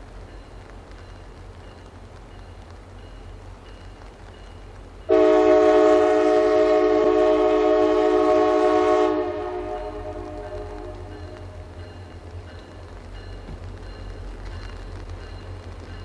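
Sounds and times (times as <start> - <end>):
horn echo: 5.1 - 11.6
locomotive air horn blast: 5.1 - 11.7.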